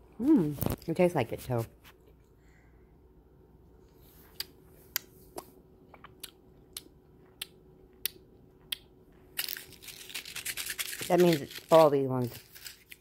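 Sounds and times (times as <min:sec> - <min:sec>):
crunching hard candy: 0:09.3 - 0:13.0
rustling: 0:09.4 - 0:13.0.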